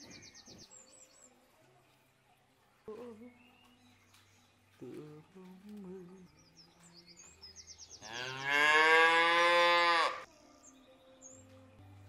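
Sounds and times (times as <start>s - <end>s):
cow mooing: 8.0s - 10.3s.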